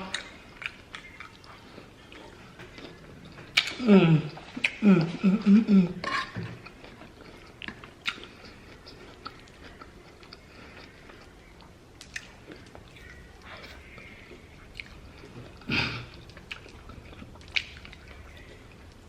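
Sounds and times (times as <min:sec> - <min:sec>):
wet chewing sounds: 0:00.0 - 0:05.2, 0:06.0 - 0:19.0
person humming: 0:03.8 - 0:06.0.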